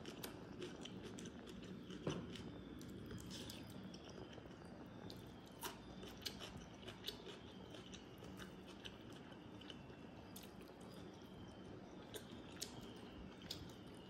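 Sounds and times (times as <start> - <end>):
chewing with wet mouth clicks: 0.0 - 14.0.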